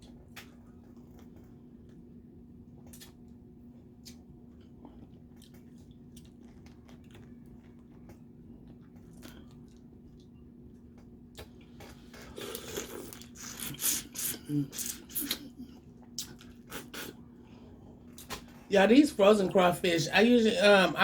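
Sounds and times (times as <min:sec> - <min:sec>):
chewing: 0:02.8 - 0:18.6.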